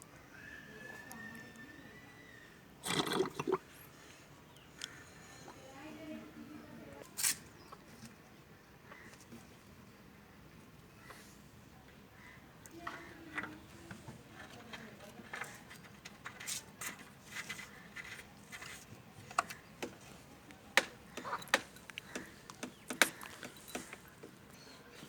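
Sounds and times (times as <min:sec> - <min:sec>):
hard objects clicking and knocking: 0:12.8 - 0:24.6.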